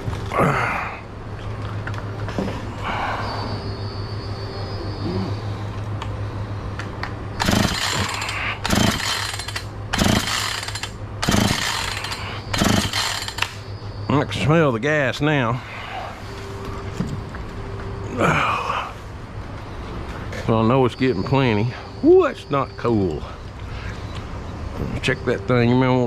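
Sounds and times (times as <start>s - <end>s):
chainsaw engine idling and revving: 7.4s - 13.6s.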